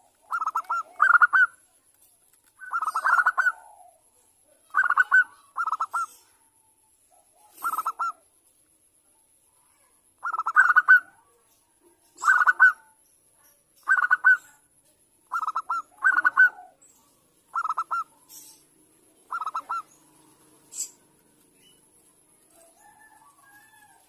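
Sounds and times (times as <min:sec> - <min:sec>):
dove cooing: 0:00.0 - 0:01.6, 0:02.6 - 0:06.4, 0:07.2 - 0:08.2, 0:10.2 - 0:11.2, 0:12.2 - 0:12.9, 0:15.3 - 0:16.9, 0:17.5 - 0:21.3.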